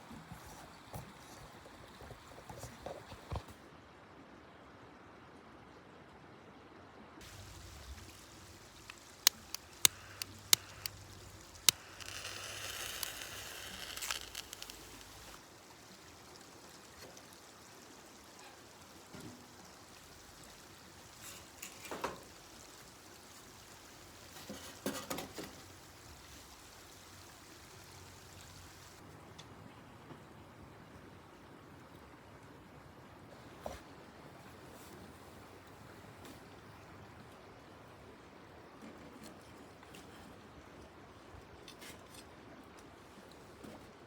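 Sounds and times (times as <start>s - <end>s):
sharp clicks: 7.2s - 22.9s
liquid pouring: 7.2s - 29.0s.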